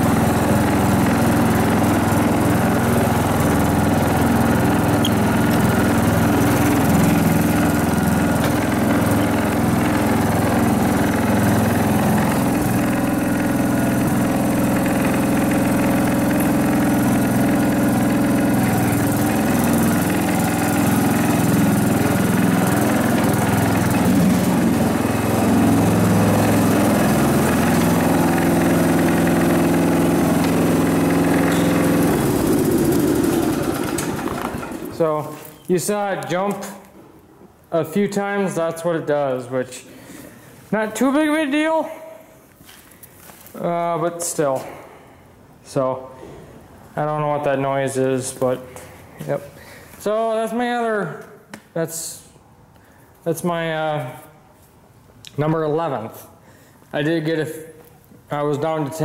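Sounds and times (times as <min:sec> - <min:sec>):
riding lawn mower engine running: 0:00.0 - 0:36.3.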